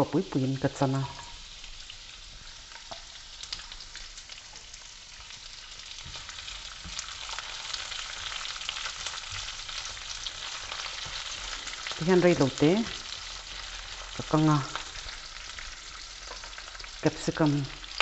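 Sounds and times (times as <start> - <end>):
onion sizzling in hot oil: 0.0 - 18.0.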